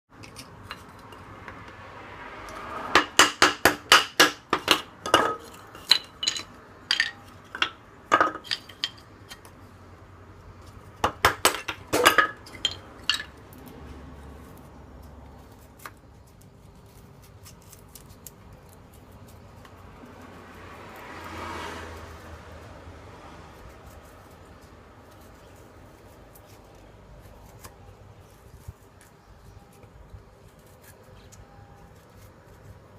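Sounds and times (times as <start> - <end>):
metal cookware parts clinking: 4.6 - 9.0, 11.5 - 13.4.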